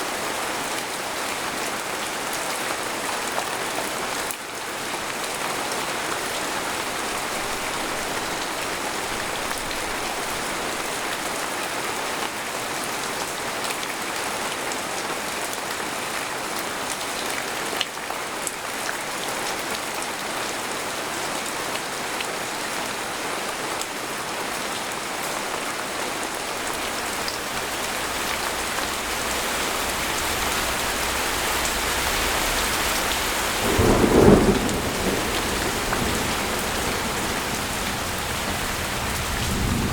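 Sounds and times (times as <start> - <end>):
rain pattering on a tent: 0.0 - 39.9
thunder rumbling: 26.9 - 39.9.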